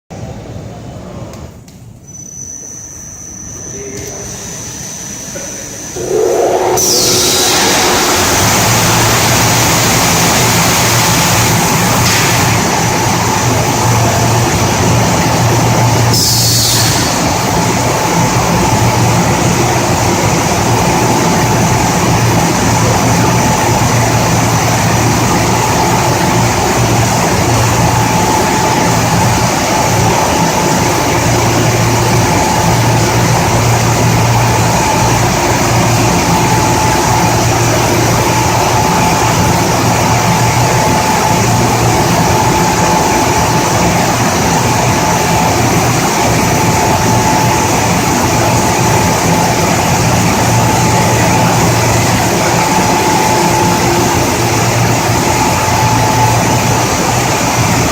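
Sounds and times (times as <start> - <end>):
low machine hum: 0.2 - 57.9
steady machine whine: 0.2 - 57.9
glass washing machine running: 3.7 - 57.9.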